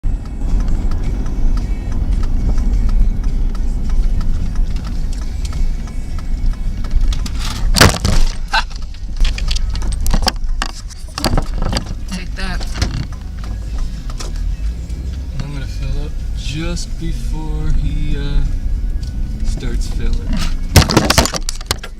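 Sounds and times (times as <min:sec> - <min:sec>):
low vehicle rumble: 0:00.0 - 0:21.9
sharp clicks knocks and rattles: 0:20.8 - 0:21.9.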